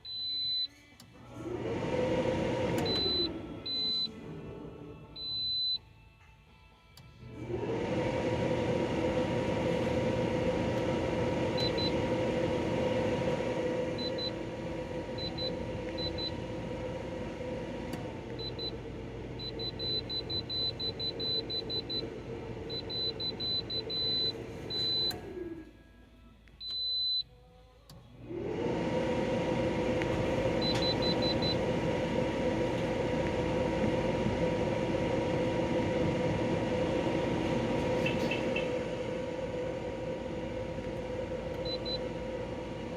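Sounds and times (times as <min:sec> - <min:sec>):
air conditioner humming: 0:00.0 - 0:42.9
fan winding down: 0:00.1 - 0:05.8, 0:07.0 - 0:26.0, 0:27.9 - 0:42.9
control panel beeping: 0:02.8 - 0:04.1, 0:15.1 - 0:16.6, 0:17.9 - 0:22.1, 0:22.7 - 0:25.3, 0:30.6 - 0:31.7, 0:41.6 - 0:42.1.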